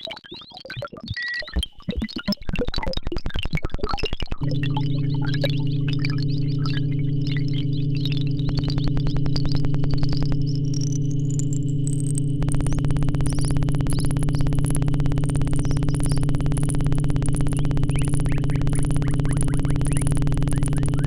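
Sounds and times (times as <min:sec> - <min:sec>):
high sine-like tone: 0:04.4 - 0:21.0
low pulsing synth drone: 0:04.4 - 0:21.0.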